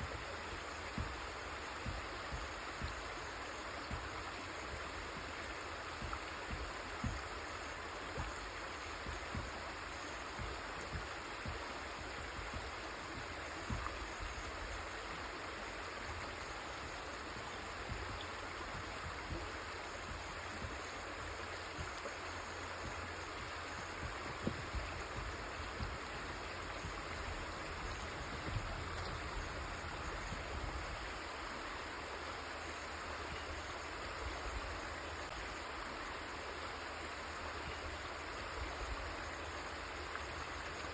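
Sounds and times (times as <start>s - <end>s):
soft low thumps: 0.0s - 31.3s
river water rushing: 0.0s - 40.9s.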